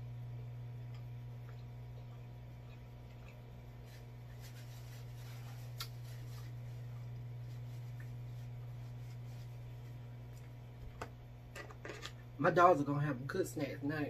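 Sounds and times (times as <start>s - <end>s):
steady low hum: 0.0s - 14.0s
soft chewing clicks: 0.7s - 3.9s, 5.7s - 6.0s.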